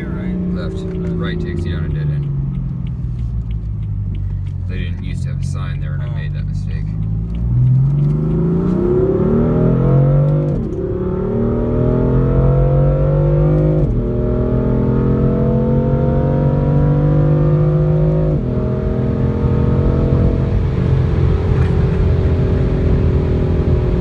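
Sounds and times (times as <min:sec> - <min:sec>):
car engine accelerating through gears: 0:00.0 - 0:24.0.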